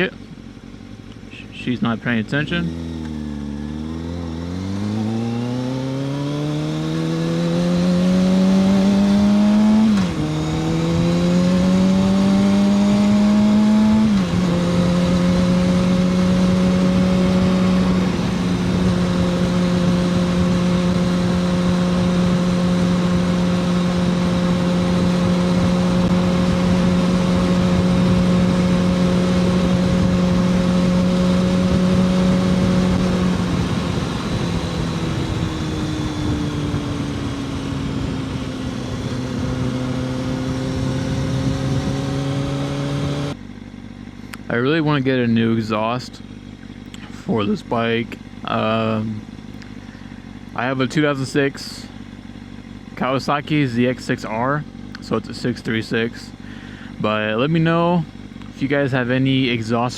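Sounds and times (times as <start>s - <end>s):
motorcycle engine accelerating: 0.0s - 59.9s
wind rush: 24.9s - 43.0s.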